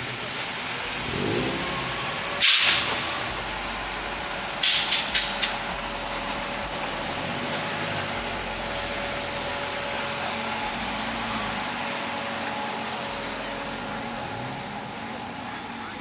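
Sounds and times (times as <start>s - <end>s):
vehicles running: 0.0s - 16.0s
compressed air hissing: 2.4s - 3.1s, 4.6s - 5.7s.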